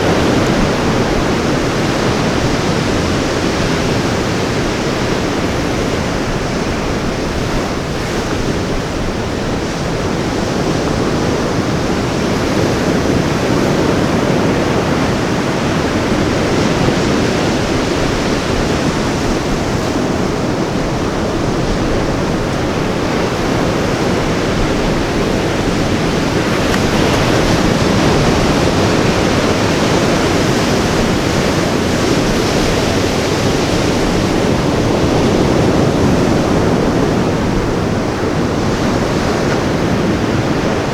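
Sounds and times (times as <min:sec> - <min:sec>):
ocean surf breaking: 0:00.0 - 0:40.9.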